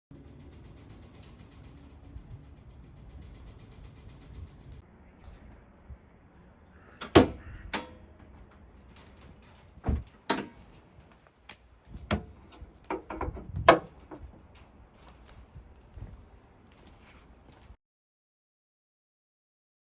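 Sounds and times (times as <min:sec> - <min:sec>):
sharp knocks and clicks: 0:07.0 - 0:14.8.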